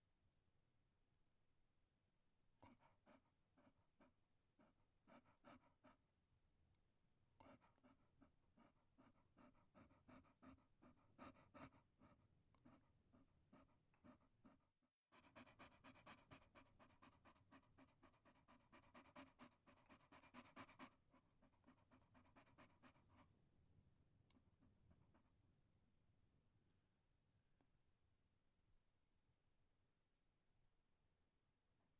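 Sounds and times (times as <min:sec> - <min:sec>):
dog panting: 0:02.6 - 0:06.1, 0:07.4 - 0:23.6.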